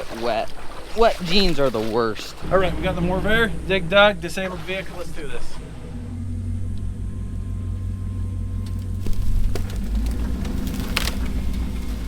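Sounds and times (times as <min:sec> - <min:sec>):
engine running at low speed: 0:02.4 - 0:12.0.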